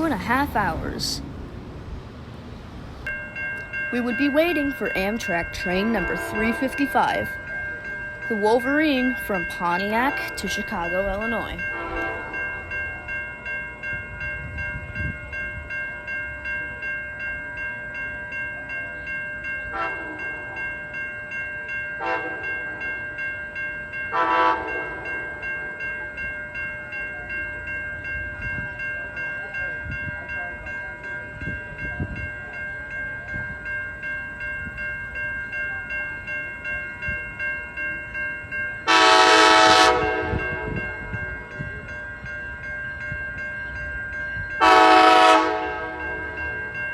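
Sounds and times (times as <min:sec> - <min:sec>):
railroad crossing bells ringing: 0:00.0 - 0:46.9
train horn: 0:06.0 - 0:06.6, 0:11.7 - 0:12.4, 0:19.7 - 0:20.3, 0:22.0 - 0:22.5, 0:24.1 - 0:25.1, 0:38.9 - 0:40.8, 0:44.6 - 0:46.2.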